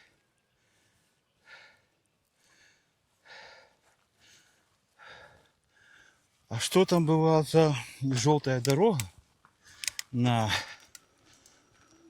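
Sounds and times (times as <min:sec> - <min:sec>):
man breathing softly: 0:00.0 - 0:06.4.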